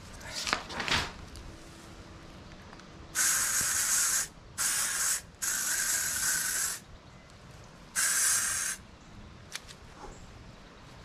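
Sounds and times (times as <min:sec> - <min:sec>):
aerosol spray hissing: 0:03.2 - 0:06.8, 0:08.0 - 0:08.8.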